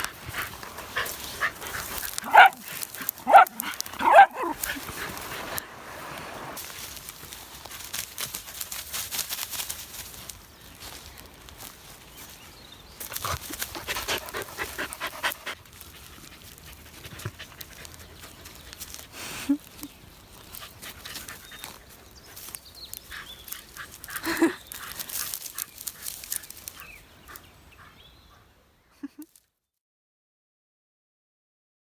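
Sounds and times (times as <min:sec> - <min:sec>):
dogs panting: 0:00.0 - 0:05.8, 0:13.1 - 0:19.2, 0:20.4 - 0:28.6
dogs scuffling: 0:00.0 - 0:11.0
low dog calls: 0:00.9 - 0:04.8.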